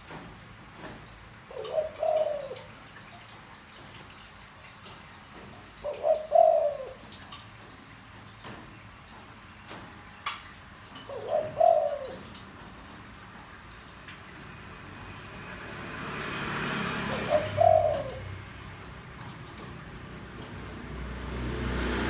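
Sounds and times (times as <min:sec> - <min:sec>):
dove cooing: 0:01.4 - 0:02.9, 0:05.7 - 0:07.2, 0:10.9 - 0:13.2, 0:16.6 - 0:22.0.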